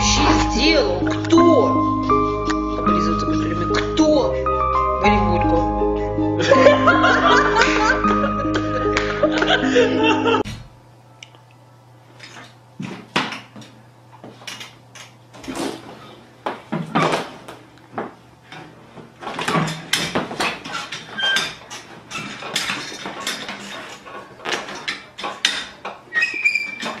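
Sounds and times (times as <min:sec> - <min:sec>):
chair parts clattering and scraping: 0:12.2 - 0:27.0.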